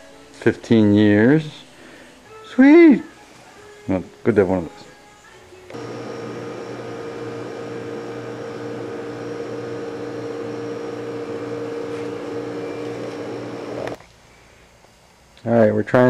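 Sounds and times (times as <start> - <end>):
power tool motor humming: 5.7 - 14.0.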